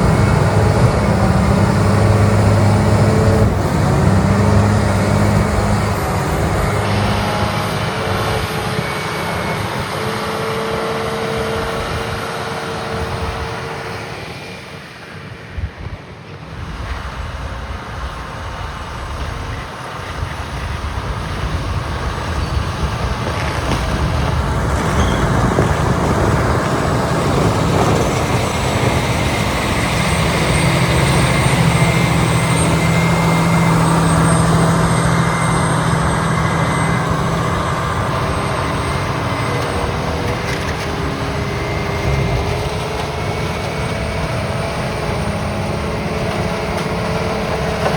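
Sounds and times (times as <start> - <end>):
diesel engines of graders running: 0.0 - 47.9
low hum: 12.8 - 47.9.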